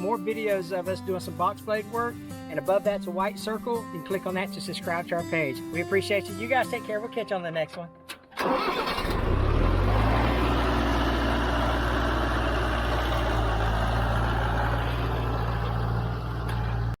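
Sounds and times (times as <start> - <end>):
tractor diesel engine idling: 8.4 - 17.0.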